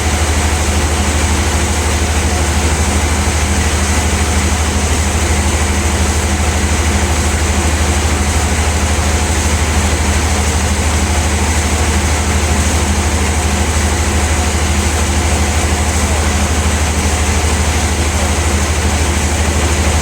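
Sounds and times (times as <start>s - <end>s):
band saw running: 0.0s - 20.0s.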